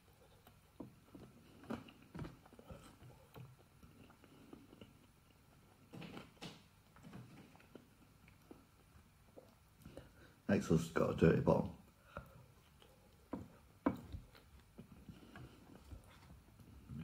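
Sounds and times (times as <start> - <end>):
faint chewing: 0.0 - 10.5, 11.9 - 17.0.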